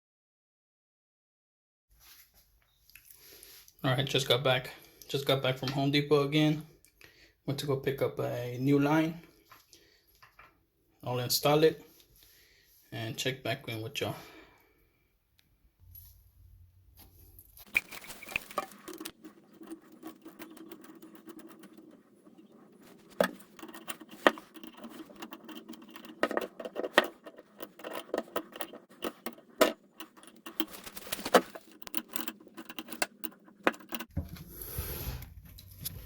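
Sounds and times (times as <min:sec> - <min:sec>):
fittings clicking and clinking: 0:17.6 - 0:34.1.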